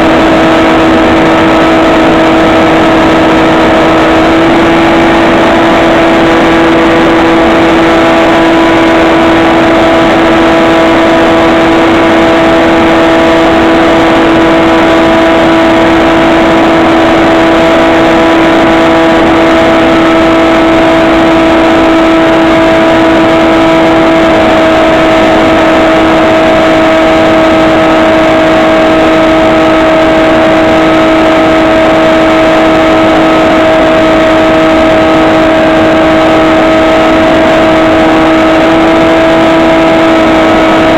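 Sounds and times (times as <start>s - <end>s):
model plane propeller whine: 0.0s - 40.9s.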